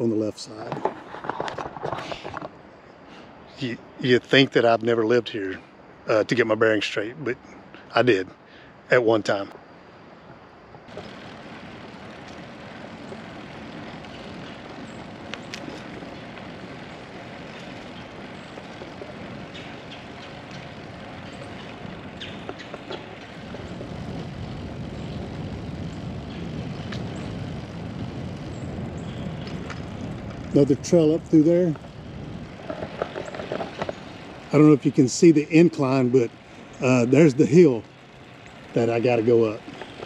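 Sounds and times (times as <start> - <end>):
bicycle tyres rolling on trail: 0.0 - 7.1, 8.0 - 40.0
low rumble: 10.8 - 40.0
wind on microphone: 10.9 - 37.7
small clicks and rattles: 10.9 - 40.0.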